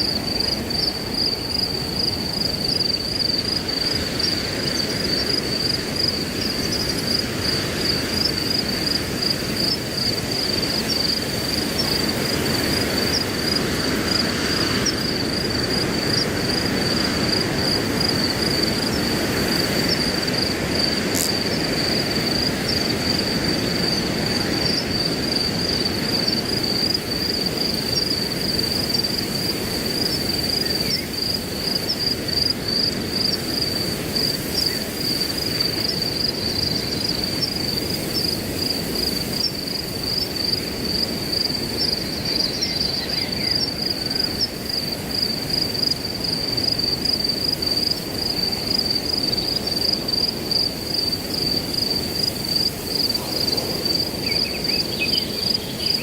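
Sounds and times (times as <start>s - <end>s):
crickets chirping: 0.0s - 56.0s
wind in grass: 0.0s - 56.0s
faint bird chirps: 53.2s - 56.0s.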